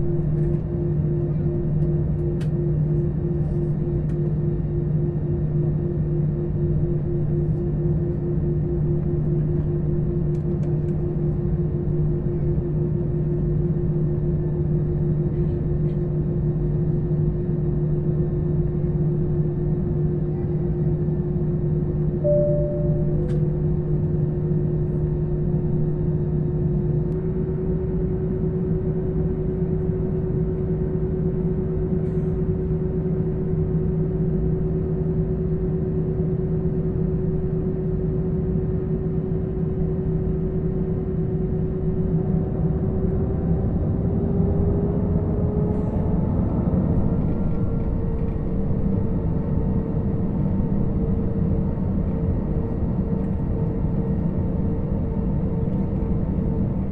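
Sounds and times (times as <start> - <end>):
low cabin rumble: 7.0 - 27.4, 40.4 - 50.0.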